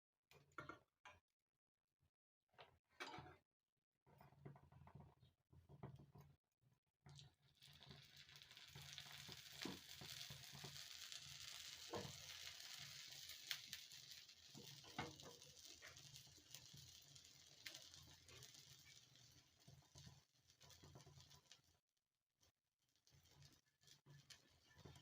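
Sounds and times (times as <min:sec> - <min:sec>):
batter sizzling on griddle: 0:07.4 - 0:21.8, 0:22.9 - 0:25.0.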